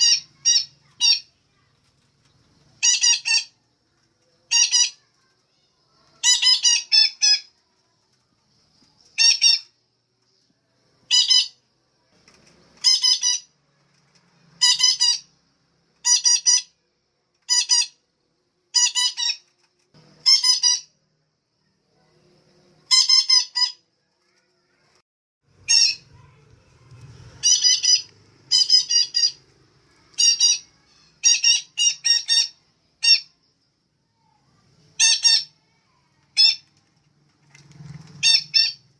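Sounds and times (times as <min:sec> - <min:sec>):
parakeet squawking: 0:00.0 - 0:01.3, 0:02.8 - 0:03.6, 0:04.5 - 0:05.1, 0:06.0 - 0:07.5, 0:09.2 - 0:09.7, 0:11.1 - 0:11.6, 0:12.8 - 0:13.5, 0:14.6 - 0:15.3, 0:16.0 - 0:16.8, 0:17.5 - 0:18.0, 0:18.7 - 0:19.4, 0:20.2 - 0:21.0, 0:22.9 - 0:23.8, 0:25.6 - 0:26.4, 0:27.3 - 0:29.4, 0:30.0 - 0:33.4, 0:35.0 - 0:36.7, 0:38.2 - 0:38.8.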